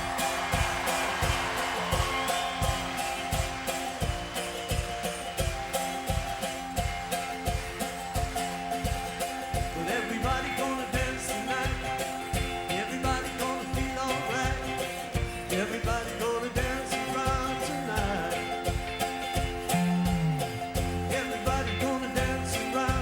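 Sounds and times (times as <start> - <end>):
live rock band music: 0.0 - 23.0
sliding lead guitar line: 0.0 - 23.0
steady drumbeat: 0.0 - 23.0.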